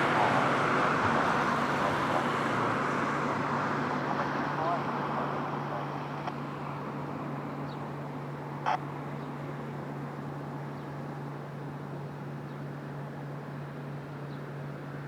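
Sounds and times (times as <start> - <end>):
distant jet aircraft: 0.0 - 12.6.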